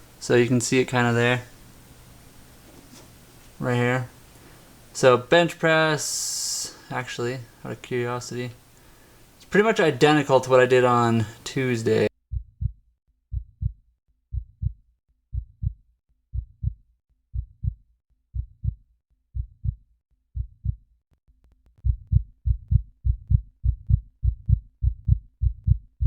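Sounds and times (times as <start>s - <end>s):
heartbeat thumps: 12.3s - 18.8s, 19.4s - 19.8s, 20.4s - 20.8s, 21.8s - 26.0s.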